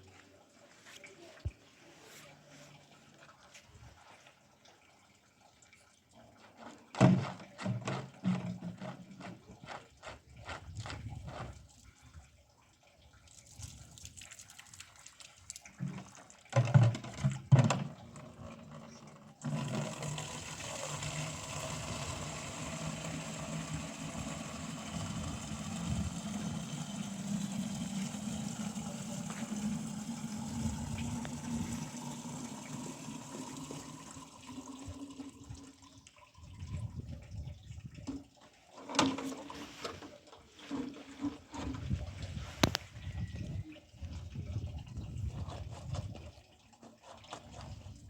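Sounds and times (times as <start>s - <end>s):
water running: 11.6s - 42.8s.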